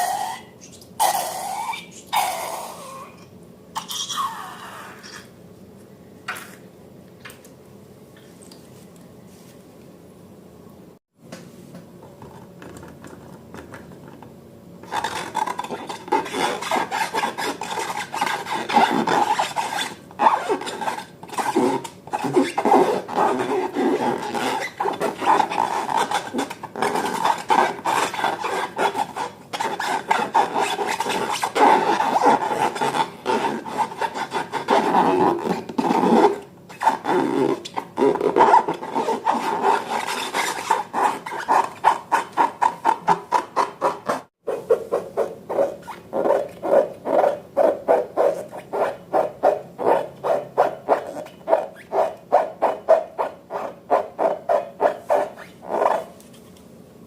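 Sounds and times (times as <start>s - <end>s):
hands rubbing balloons and slime: 14.8s - 50.0s.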